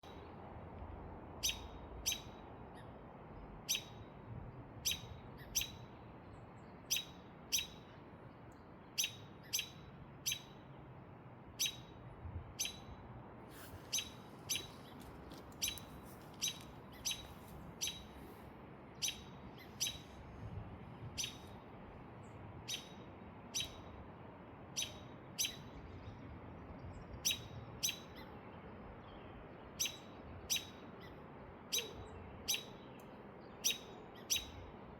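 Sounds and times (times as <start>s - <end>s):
bird chirping: 1.4s - 2.9s, 3.7s - 4.0s, 4.8s - 6.0s, 6.6s - 10.6s, 11.6s - 12.0s, 12.6s - 13.0s, 13.8s - 20.1s, 21.2s - 21.6s, 22.6s - 23.9s, 24.7s - 26.2s, 26.8s - 28.4s, 29.0s - 34.7s.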